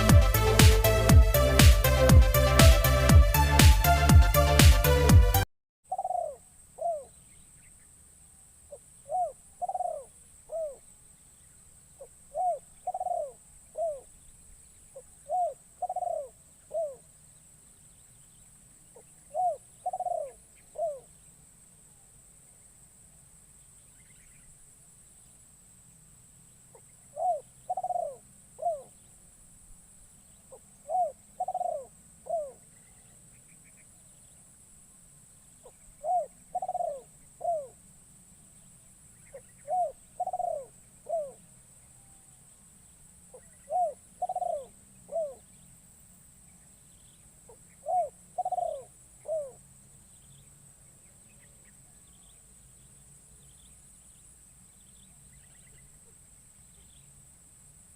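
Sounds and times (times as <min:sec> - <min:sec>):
high-pitched drone: 0:00.0 - 0:05.4
dove cooing: 0:05.9 - 0:07.1, 0:09.1 - 0:10.8, 0:12.3 - 0:14.1, 0:15.0 - 0:17.1, 0:19.0 - 0:21.1, 0:27.1 - 0:29.0, 0:30.5 - 0:33.2, 0:35.6 - 0:37.8, 0:39.3 - 0:42.2, 0:43.3 - 0:45.5, 0:47.5 - 0:49.6.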